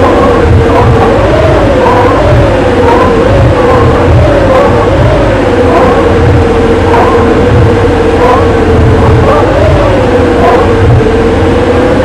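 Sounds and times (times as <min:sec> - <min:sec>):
steady engine whine: 0:00.0 - 0:12.0
vehicle engine running loudly: 0:00.0 - 0:12.0.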